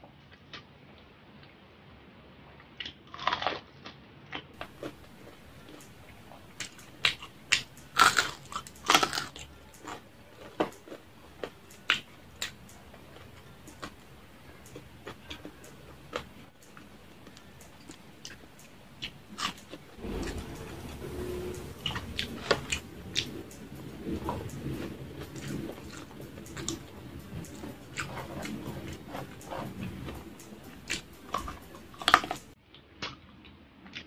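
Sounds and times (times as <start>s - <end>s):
crunching crispy pork skin: 2.8s - 4.0s, 6.6s - 12.0s.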